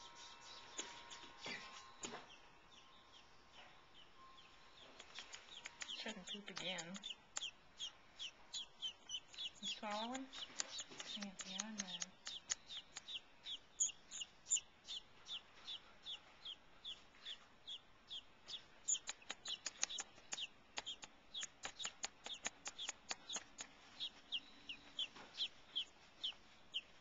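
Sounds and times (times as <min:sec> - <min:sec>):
bird chirping: 0:00.0 - 0:27.0
sharp clicks: 0:05.0 - 0:07.6, 0:09.1 - 0:13.2, 0:18.9 - 0:23.8.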